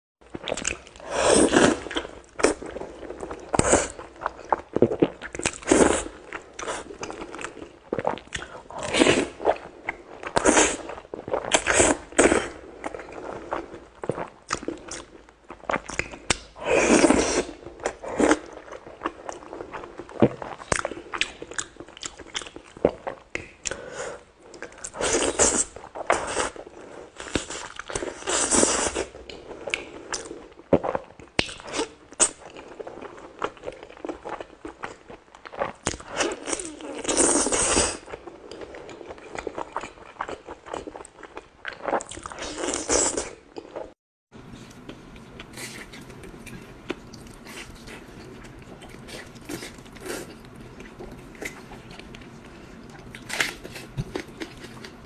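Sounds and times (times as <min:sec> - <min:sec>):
quiet chewing clicks: 0:44.6 - 0:55.0.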